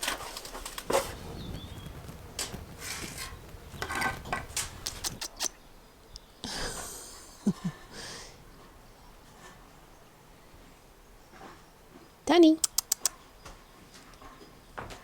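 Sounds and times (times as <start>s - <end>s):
shovel scraping concrete: 2.3s - 5.4s.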